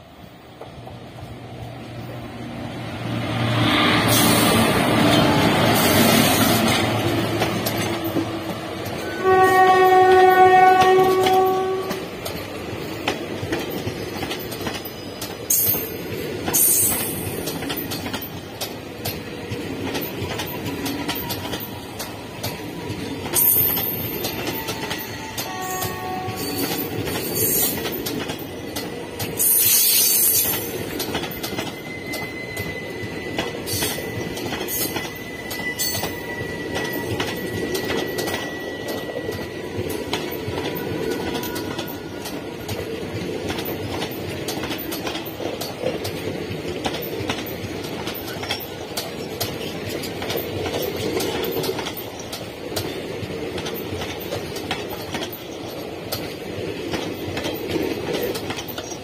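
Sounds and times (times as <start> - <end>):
train wheels clattering on rails: 0.0 - 59.0
high wheel squeal: 29.4 - 39.9
wheel clicks over rail joints: 40.1 - 59.0.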